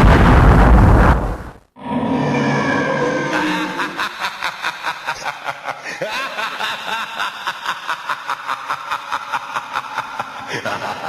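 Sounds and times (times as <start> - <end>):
person laughing in breathy bursts: 3.3 - 11.0.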